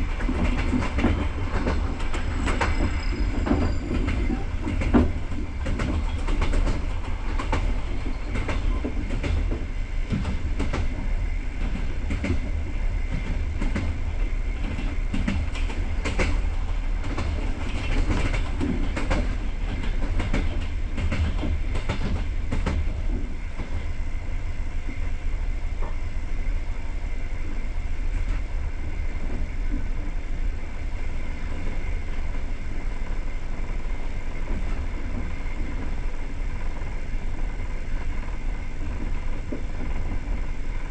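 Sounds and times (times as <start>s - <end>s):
train wheels rumbling on rails: 0.0s - 40.9s
clicks over rail joints: 14.6s - 23.8s.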